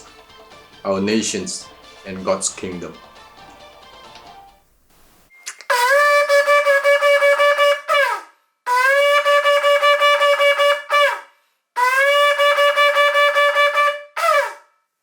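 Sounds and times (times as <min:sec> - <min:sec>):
ram's horn blasts: 0:05.7 - 0:11.2, 0:11.8 - 0:14.6.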